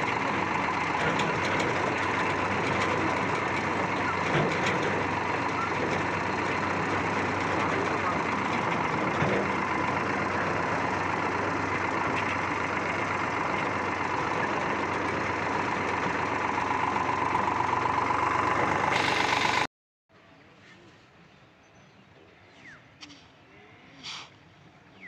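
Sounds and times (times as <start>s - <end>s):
tractor diesel engine running: 0.0s - 19.7s.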